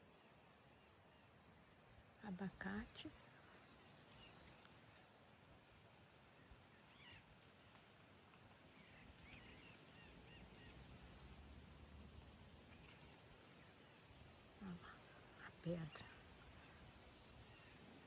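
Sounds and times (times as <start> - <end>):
insect trill: 0.1 - 18.0
faint bird chirps: 2.2 - 5.2, 6.2 - 7.7, 8.6 - 11.6.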